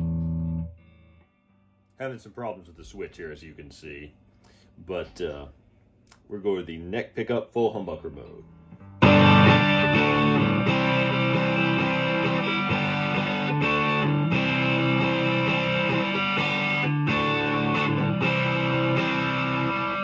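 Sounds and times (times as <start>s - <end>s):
distorted electric guitar chords: 0.0s - 1.8s, 8.4s - 20.0s.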